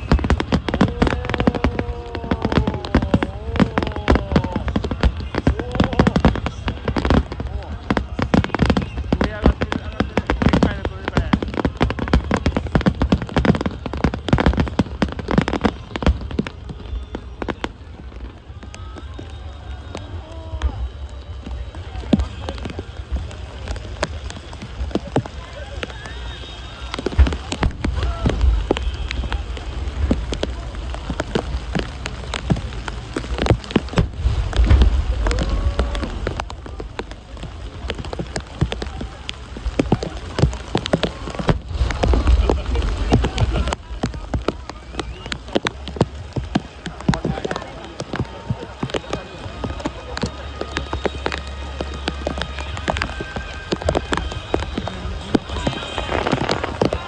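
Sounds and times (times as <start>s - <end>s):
fireworks crackling: 0.0s - 57.0s
low rumble: 33.8s - 37.9s.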